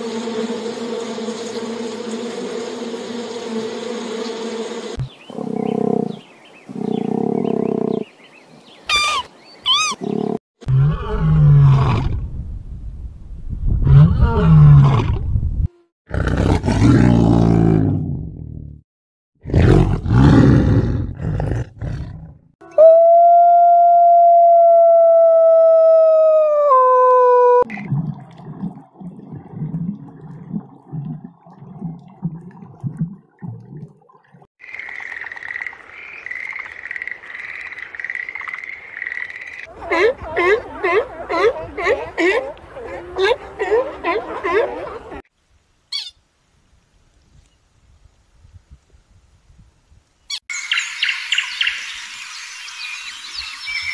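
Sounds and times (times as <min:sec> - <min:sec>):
tree frog calling: 0:08.9 - 0:10.0
wolf howling: 0:22.6 - 0:27.7.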